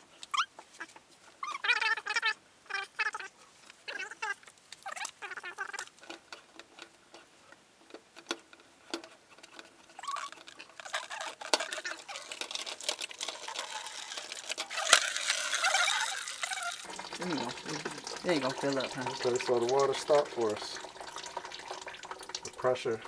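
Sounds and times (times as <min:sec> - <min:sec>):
water dripping and trickling from pipe: 0:09.4 - 0:23.0.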